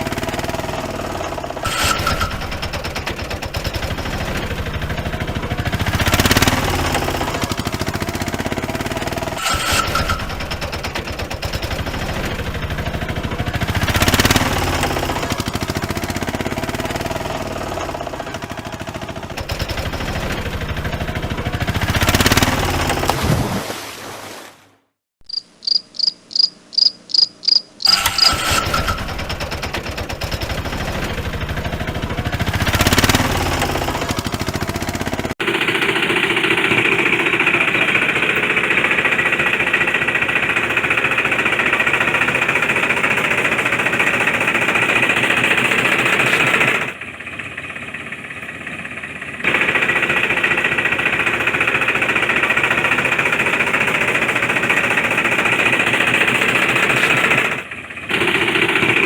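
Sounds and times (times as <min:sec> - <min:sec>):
gear rattle: 0:00.0 - 0:23.1, 0:27.5 - 0:47.0
toy electric motor buzzing: 0:01.6 - 0:02.3, 0:26.3 - 0:29.0
short high electronic beeps: 0:25.2 - 0:28.5.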